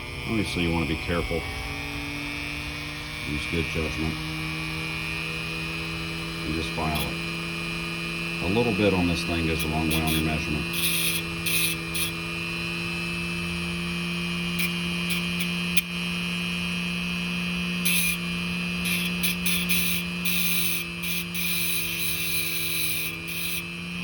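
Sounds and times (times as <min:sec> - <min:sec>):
wheel grinding metal: 0:00.0 - 0:12.8, 0:17.8 - 0:23.8
rotary tool high-speed whine: 0:00.0 - 0:24.0.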